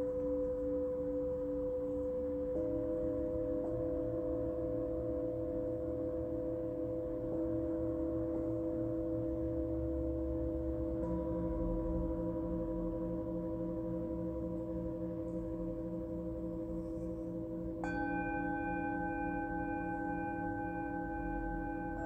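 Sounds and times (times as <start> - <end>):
singing bowls ringing: 10.7 - 22.0
singing bowl struck: 17.8 - 22.0.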